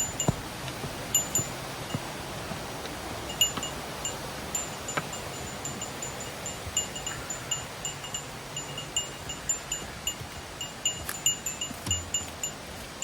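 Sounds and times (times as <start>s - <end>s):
small metal bell jingling: 1.1s - 1.6s, 3.3s - 12.6s.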